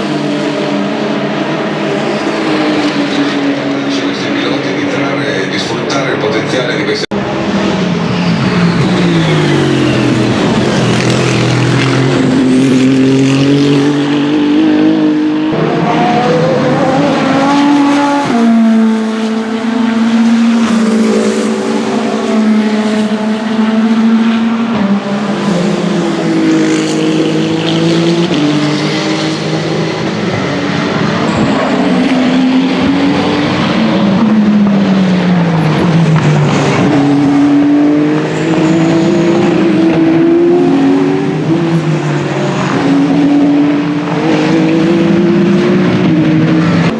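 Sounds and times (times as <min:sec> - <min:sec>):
race car engines at speed: 0:00.0 - 0:46.9.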